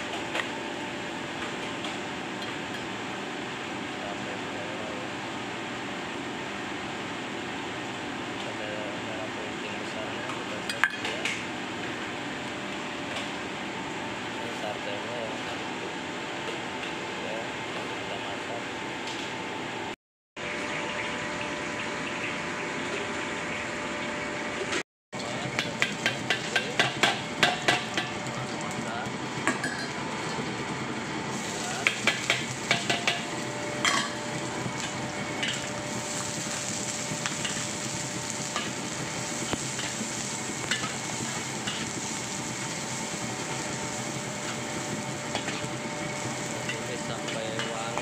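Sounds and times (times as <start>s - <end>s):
shallots sizzling in oil: 29.8s - 48.0s.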